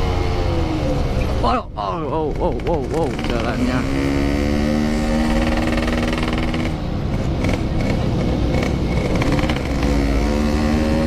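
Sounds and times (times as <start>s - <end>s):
motorcycle engine running: 2.2s - 11.0s.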